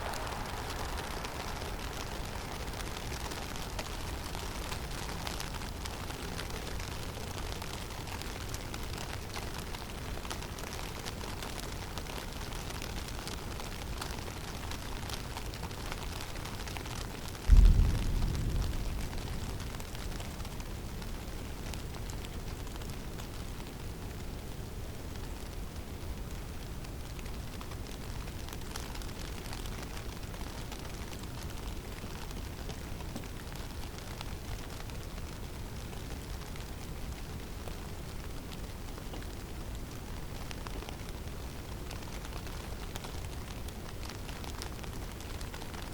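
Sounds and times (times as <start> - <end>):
loud low rumble: 0.0 - 4.3, 17.5 - 20.4
snow pattering: 0.0 - 5.0
wind low rumble: 0.0 - 6.4, 17.4 - 22.4
low rumble of wind: 0.0 - 11.0, 17.0 - 44.1.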